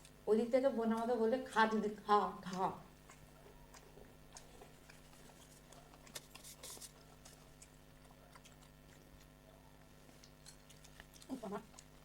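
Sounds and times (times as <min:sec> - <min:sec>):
chewing clicks and crunches: 0:00.0 - 0:00.2, 0:01.0 - 0:12.0
faint steady hum: 0:00.0 - 0:12.0.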